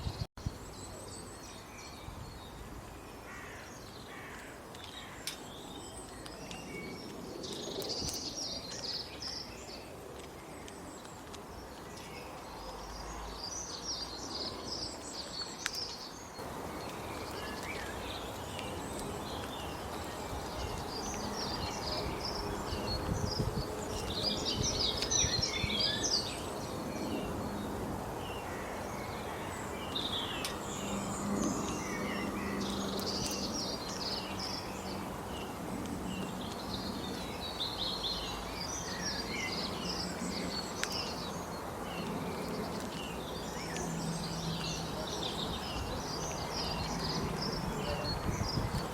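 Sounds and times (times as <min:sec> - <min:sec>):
birds chirping: 0:00.0 - 0:48.9
outdoor background noise: 0:00.0 - 0:48.9.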